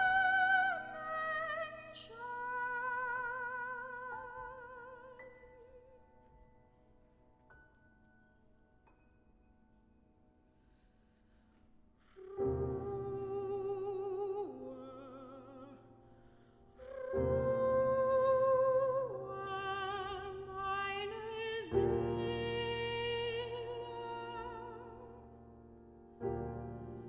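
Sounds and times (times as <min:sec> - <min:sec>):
soprano singing with vibrato: 0:00.0 - 0:06.1, 0:12.2 - 0:15.9, 0:16.8 - 0:25.3
piano chords: 0:12.2 - 0:27.0.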